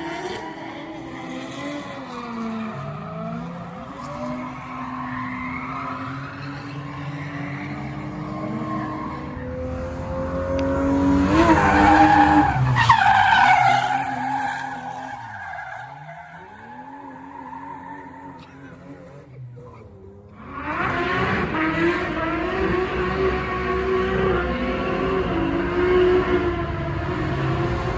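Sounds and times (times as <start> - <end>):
tyres squealing and skidding: 0.0 - 9.6, 11.3 - 20.1
car engine revving high: 5.8 - 27.9.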